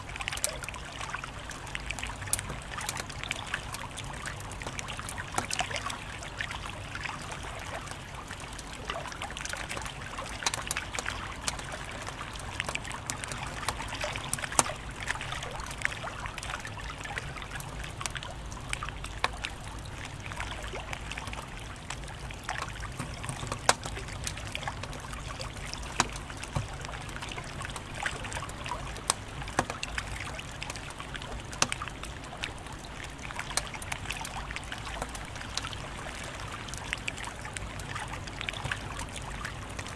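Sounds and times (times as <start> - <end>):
wood fire crackling and popping: 8.5 - 15.3, 22.4 - 31.9.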